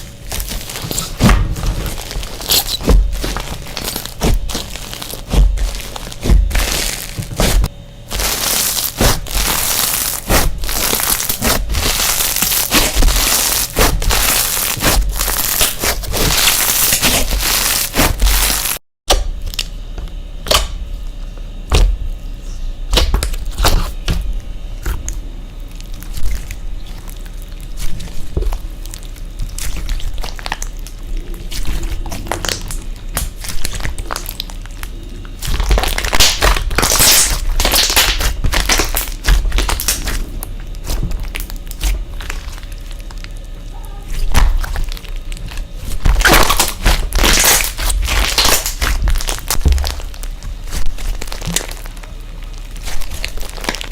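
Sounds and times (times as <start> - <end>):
slime crackling and clicking: 31.6 - 43.5, 44.1 - 53.9.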